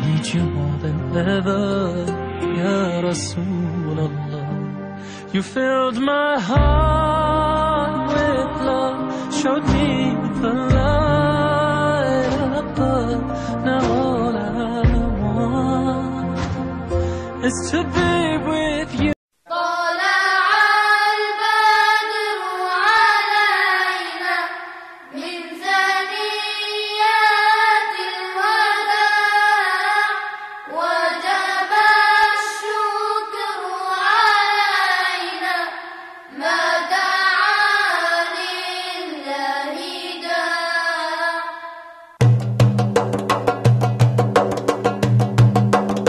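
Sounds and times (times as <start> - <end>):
voices singing a nasheed: 17.6 - 42.2.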